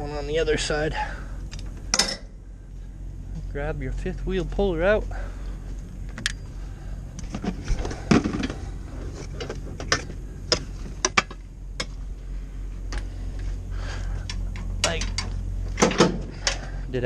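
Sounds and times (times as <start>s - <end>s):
truck engine idling: 0.0s - 17.0s
metal clanks and clicks: 14.2s - 16.7s.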